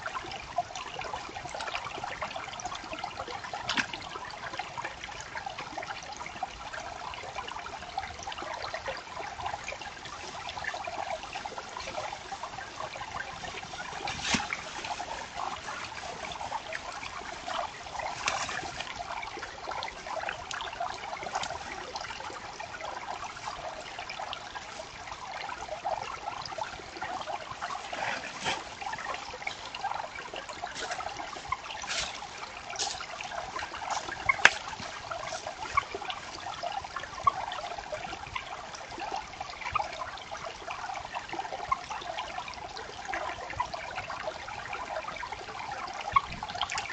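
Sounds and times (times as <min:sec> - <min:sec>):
creek water trickling: 0:00.0 - 0:46.9.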